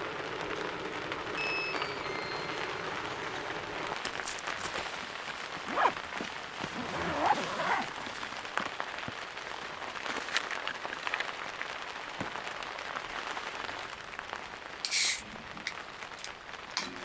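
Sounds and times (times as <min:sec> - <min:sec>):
steady rain: 0:00.0 - 0:17.0
loud hiss: 0:14.8 - 0:15.3.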